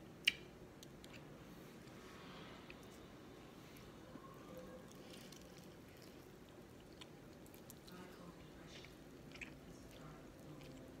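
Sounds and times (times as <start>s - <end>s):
chewing and mouth smacks: 0.2s - 1.3s, 4.9s - 11.0s.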